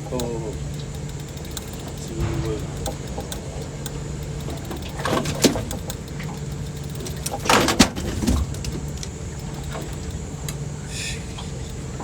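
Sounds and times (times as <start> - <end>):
boat motor idling: 0.0 - 12.0
knocks and rustling handling: 1.9 - 10.6.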